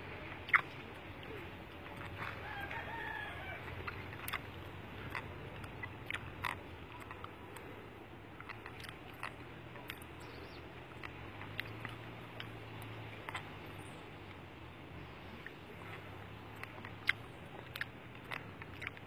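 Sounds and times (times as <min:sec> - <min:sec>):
drawn-out bird call: 0:00.0 - 0:19.0
low steady hum: 0:00.0 - 0:19.0.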